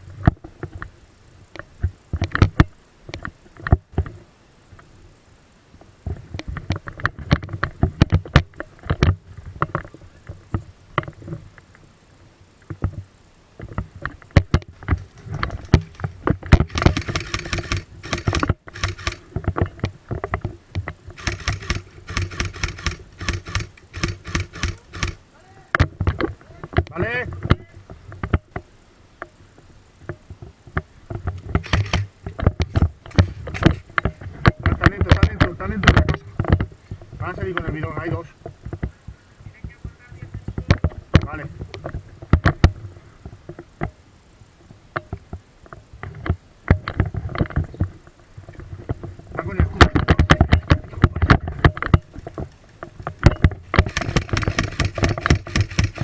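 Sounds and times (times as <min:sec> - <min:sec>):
sharp clicks and knocks: 0:13.6 - 0:25.2, 0:30.8 - 0:36.7, 0:48.5 - 0:56.0.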